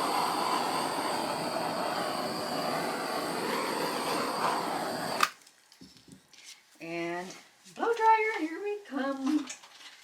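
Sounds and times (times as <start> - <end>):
torch burning with a steady hiss: 0.0 - 5.5.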